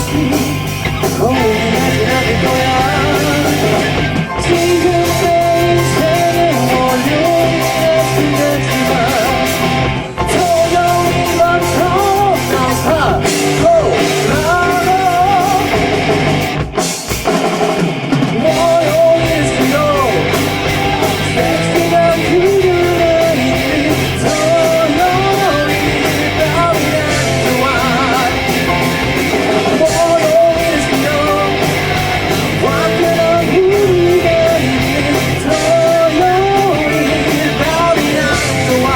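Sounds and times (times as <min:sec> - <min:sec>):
bending lead melody: 0:00.0 - 0:38.9
rock band playing live: 0:00.0 - 0:38.9.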